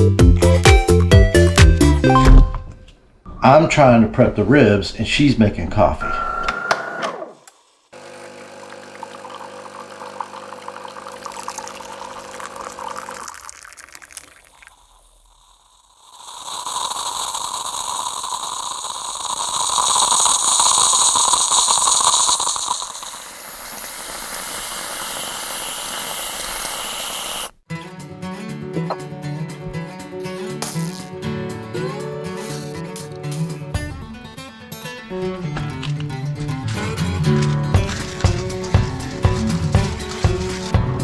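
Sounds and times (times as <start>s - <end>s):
music: 0.0s - 3.0s, 27.7s - 41.0s
coffee machine humming: 6.0s - 14.8s, 15.5s - 27.6s, 37.8s - 41.0s
hissing gush of water and steam: 15.8s - 27.5s.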